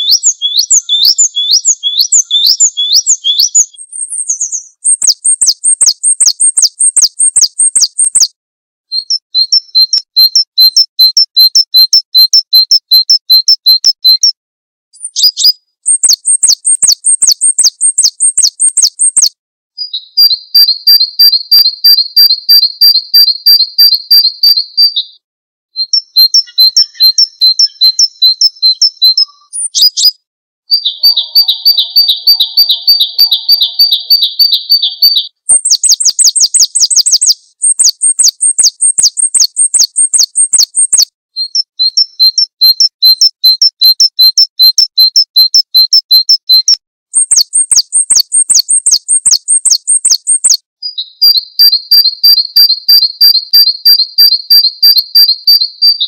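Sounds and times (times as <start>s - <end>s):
songbirds chirping: 0.0s - 8.3s, 25.8s - 41.0s.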